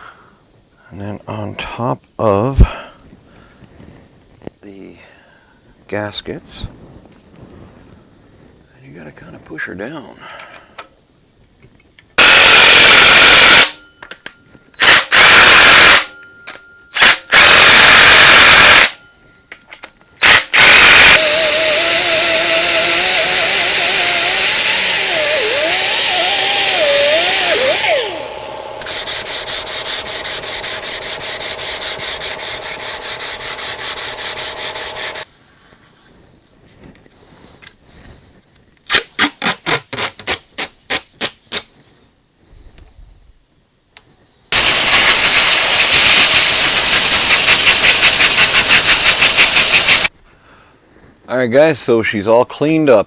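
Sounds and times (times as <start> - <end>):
compressed air blasts: 17.0 - 18.9, 20.2 - 35.3, 44.5 - 50.1
pulsing mechanical sound: 20.2 - 35.2
wavering whistle: 44.6 - 50.1.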